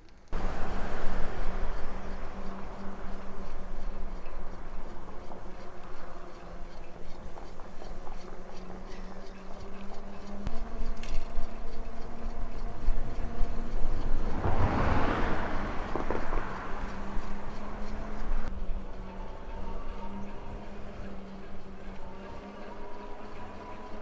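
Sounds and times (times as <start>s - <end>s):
electric bike hum: 0.0s - 24.0s
wind rumble on microphone: 0.2s - 24.0s
rush of noise: 13.7s - 18.6s.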